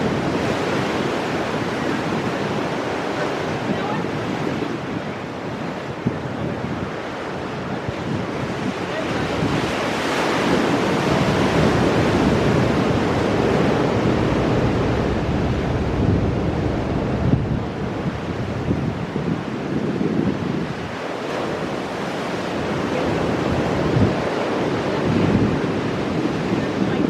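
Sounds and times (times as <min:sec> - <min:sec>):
wind buffeting microphone: 0:00.0 - 0:27.0
surf breaking on rocks: 0:06.0 - 0:27.0.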